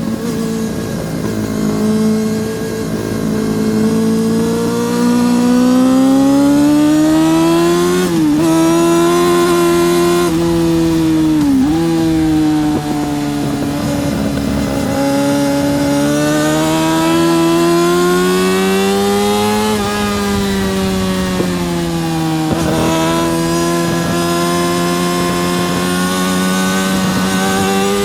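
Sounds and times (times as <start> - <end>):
motorcycle engine at high revs: 0.0 - 28.0.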